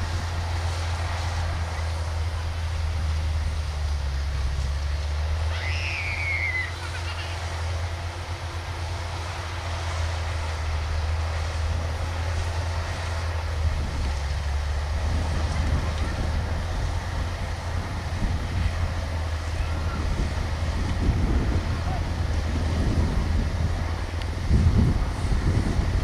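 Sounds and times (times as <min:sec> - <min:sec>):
combine harvester diesel engine: 0:00.0 - 0:26.0.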